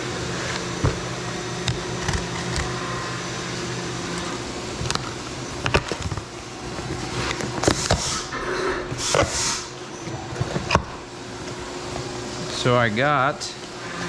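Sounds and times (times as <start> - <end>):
milling machine humming: 0.0 - 14.0.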